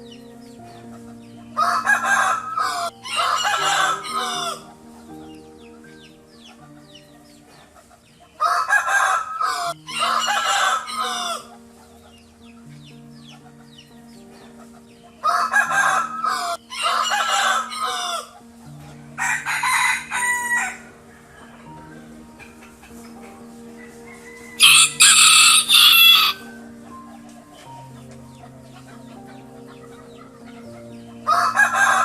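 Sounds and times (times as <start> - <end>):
rooster crowing: 1.6 - 4.7, 19.2 - 21.8, 24.1 - 26.4.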